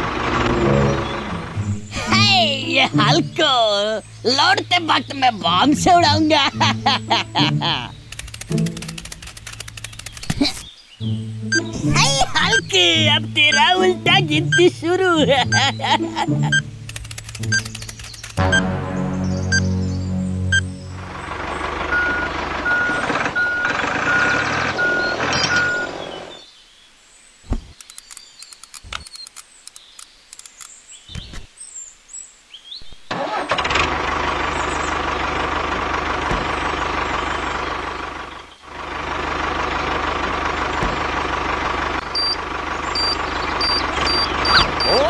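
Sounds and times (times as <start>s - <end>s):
tractor engine running: 0.0s - 26.4s, 33.1s - 45.0s
clicks: 8.1s - 10.7s, 16.9s - 18.4s
higher electronic beep: 11.5s - 12.7s, 18.4s - 18.8s, 19.5s - 19.8s, 20.5s - 20.7s
short electronic beeps: 11.5s - 12.7s, 17.4s - 17.8s, 18.4s - 18.7s, 21.9s - 26.0s, 42.1s - 42.4s, 43.0s - 45.0s.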